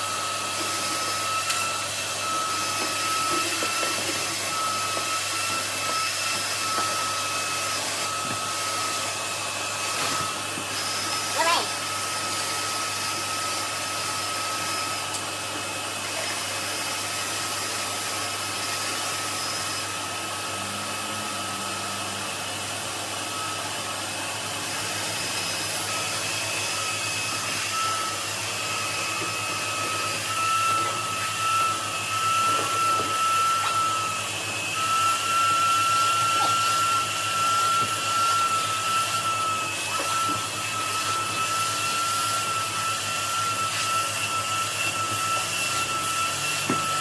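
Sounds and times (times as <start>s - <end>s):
vacuum cleaner running: 0.0s - 47.0s.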